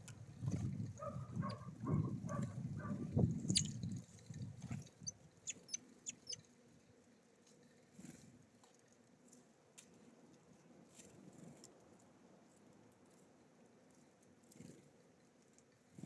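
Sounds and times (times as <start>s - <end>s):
faint background: 0.0s - 6.4s
songbirds chirping: 1.0s - 4.0s, 4.8s - 6.4s.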